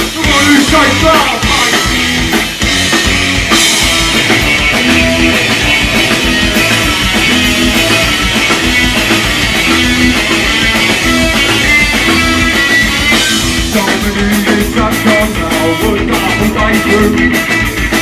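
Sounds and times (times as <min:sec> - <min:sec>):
bass and drums: 0:00.0 - 0:18.0
electric guitar riff: 0:00.0 - 0:18.0.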